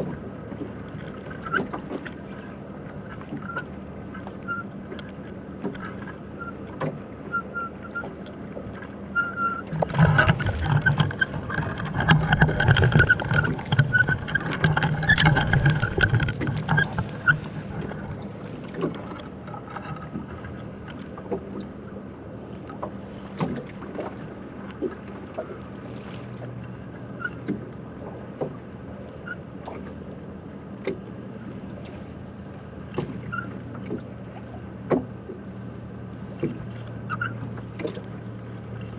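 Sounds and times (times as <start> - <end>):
muffled water sloshing: 0.0 - 38.9
knocks and clicks: 9.7 - 18.2.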